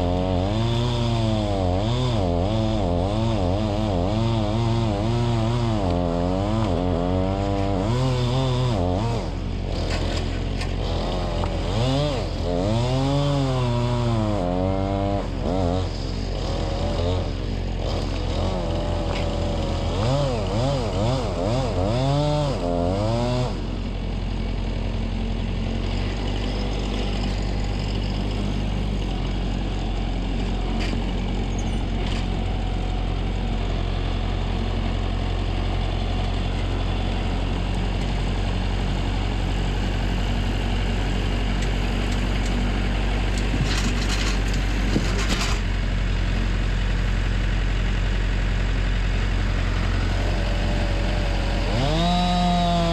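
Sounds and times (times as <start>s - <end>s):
chainsaw revving: 0.0s - 52.9s
heavy engine humming: 0.0s - 52.9s.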